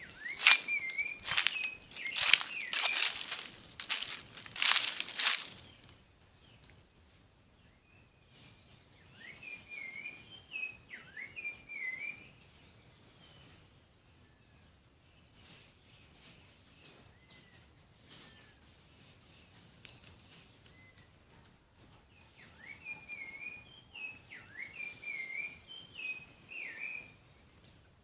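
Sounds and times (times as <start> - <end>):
songbird warbling whistles: 0.0 - 3.2, 9.1 - 12.3, 22.4 - 27.3.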